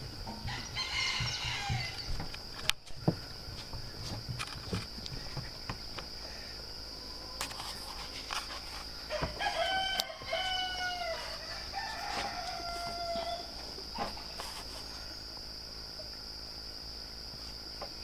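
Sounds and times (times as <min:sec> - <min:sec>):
insects droning: 0:00.0 - 0:18.0
rooster crowing: 0:00.2 - 0:02.3, 0:09.0 - 0:13.9.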